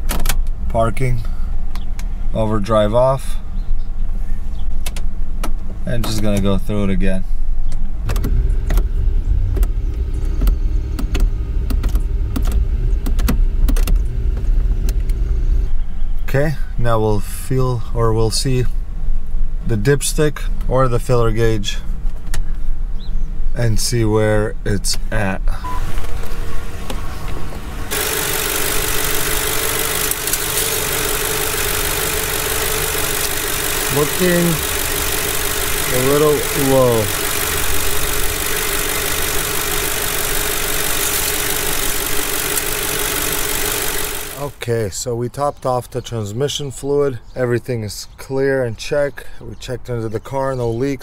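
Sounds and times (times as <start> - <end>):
gear shifter clicks and clunks: 7.8 - 8.9, 9.5 - 15.4
car engine idling: 7.9 - 16.0, 27.8 - 44.8.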